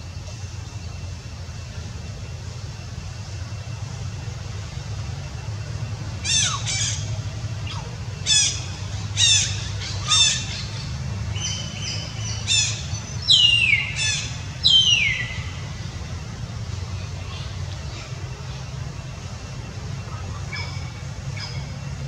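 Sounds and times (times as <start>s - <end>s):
steady low hum: 0.0s - 22.0s
bird calling: 4.6s - 22.0s.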